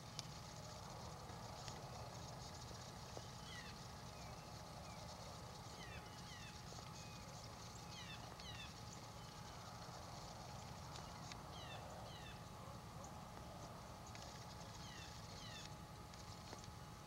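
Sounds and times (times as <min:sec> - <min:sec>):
low steady rumble: 0:00.0 - 0:17.0
birds chirping: 0:02.3 - 0:15.8.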